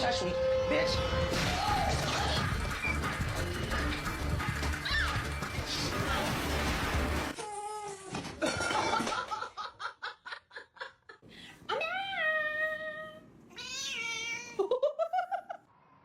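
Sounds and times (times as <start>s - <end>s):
cat meowing: 13.5s - 14.6s.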